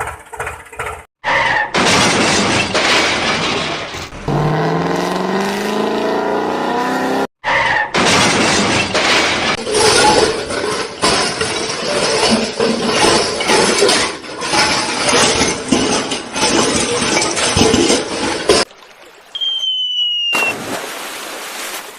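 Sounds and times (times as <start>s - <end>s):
engine revving: 4.1s - 7.3s.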